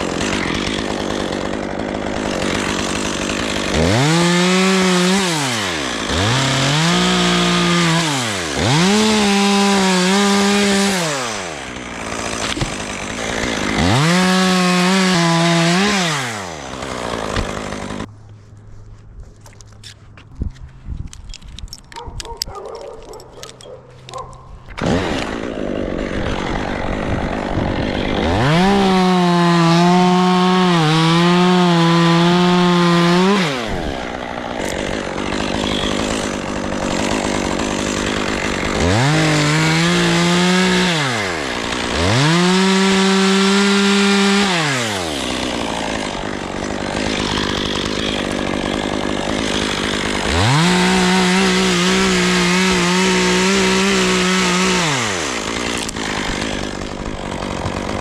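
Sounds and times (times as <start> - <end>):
chainsaw cutting wood: 0.0 - 18.2, 21.2 - 58.0.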